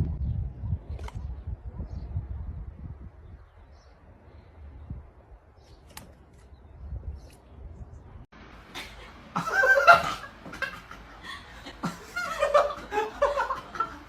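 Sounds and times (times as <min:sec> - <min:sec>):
person laughing: 0:08.7 - 0:14.0.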